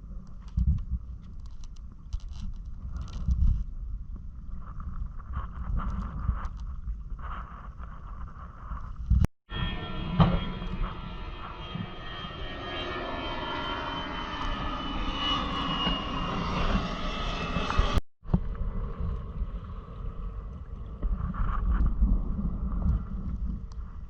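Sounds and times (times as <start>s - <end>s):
passing motor drone: 9.5s - 20.9s
wind buffeting microphone: 13.4s - 24.0s.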